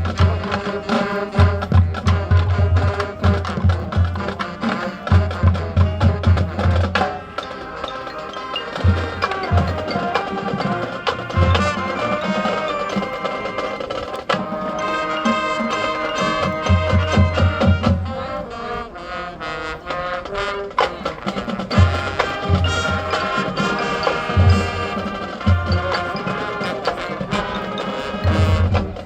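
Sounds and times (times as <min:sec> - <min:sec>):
bass drums and percussion: 0:00.0 - 0:07.9, 0:20.8 - 0:29.0
marching band playing: 0:00.0 - 0:29.0.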